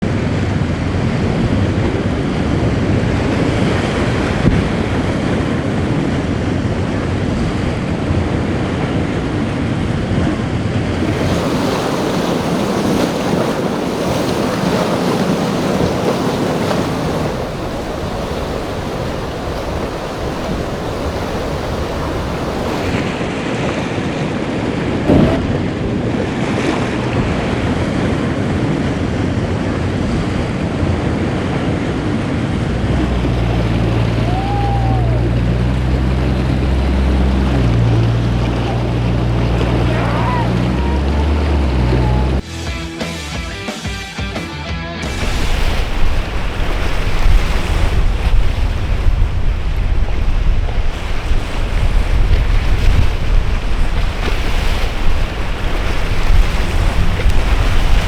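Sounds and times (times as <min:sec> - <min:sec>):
wind buffeting microphone: 0:00.0 - 0:34.2, 0:45.2 - 0:58.0
surf breaking: 0:10.4 - 0:28.0, 0:45.0 - 0:58.0
sharp knock: 0:25.1 - 0:25.7.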